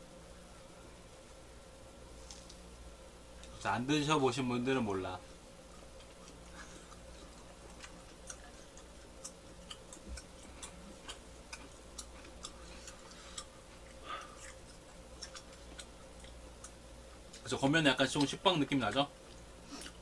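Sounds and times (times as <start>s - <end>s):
low steady hum: 0.0s - 20.0s
wet chewing clicks: 5.7s - 17.5s.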